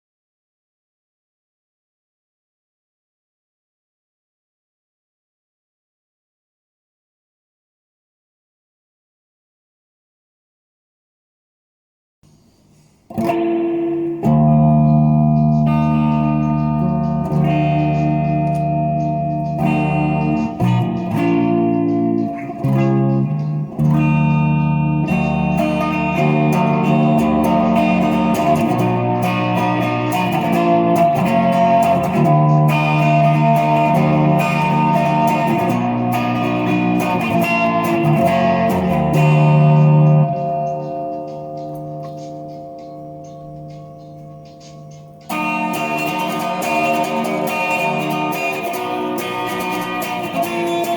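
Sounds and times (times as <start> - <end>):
electric guitar chords ringing: 13.1 - 50.9.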